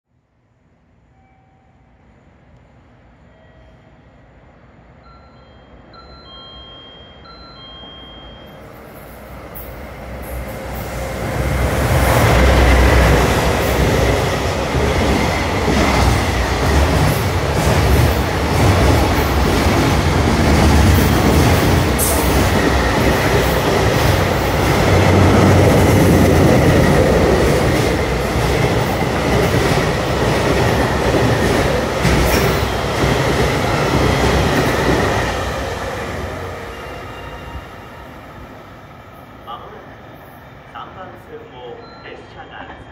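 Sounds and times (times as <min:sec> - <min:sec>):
thin high tone: 0:05.0 - 0:09.2
train wheels rumbling on rail: 0:09.0 - 0:38.0.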